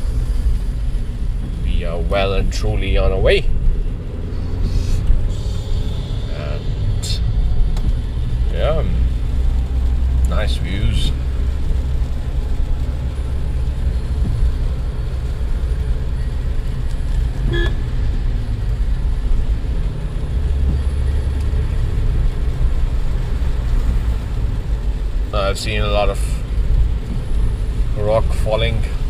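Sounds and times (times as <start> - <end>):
car engine and tyres rumbling: 0.0 - 29.0
car horn toot: 17.5 - 17.8.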